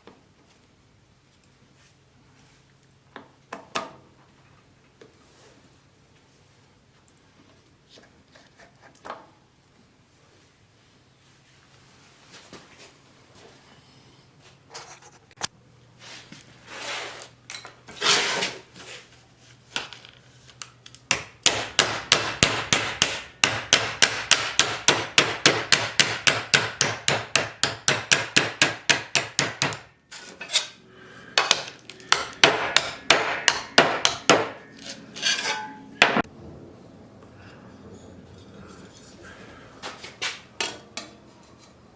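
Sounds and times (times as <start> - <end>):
hammer strikes: 21.1 - 29.9, 31.4 - 36.3.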